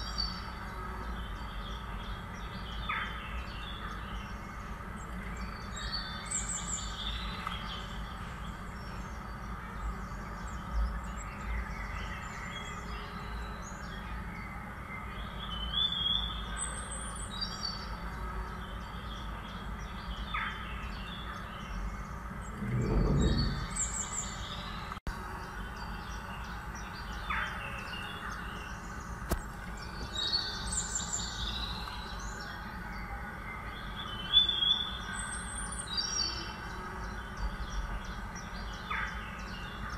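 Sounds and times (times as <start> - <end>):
birds chirping and calling: 18.7 - 33.1
low thud: 22.5 - 24.1.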